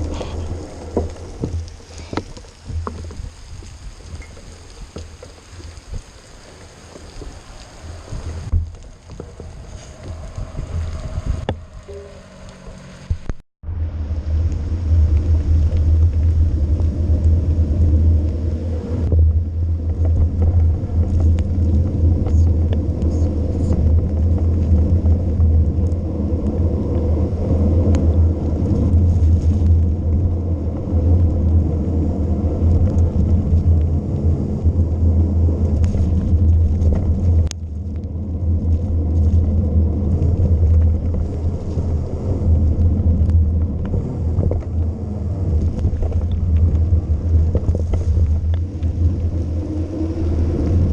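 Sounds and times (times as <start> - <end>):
wind buffeting microphone: 0.0 - 50.9.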